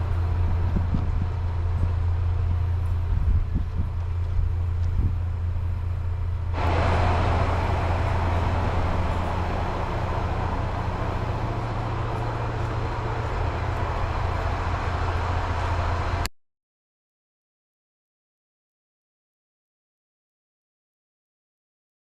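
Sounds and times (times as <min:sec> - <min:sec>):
train engine low hum: 0:00.0 - 0:16.3
loud rushing noise: 0:06.5 - 0:16.3.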